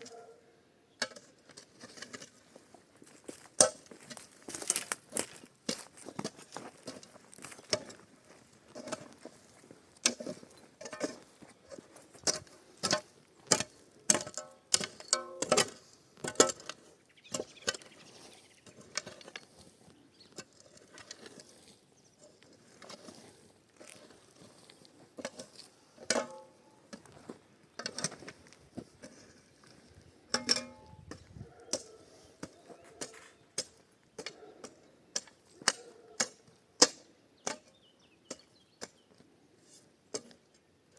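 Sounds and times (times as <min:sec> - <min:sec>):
knocks and clattering of tools: 0:10.0 - 0:17.9, 0:25.2 - 0:27.2, 0:27.8 - 0:37.7.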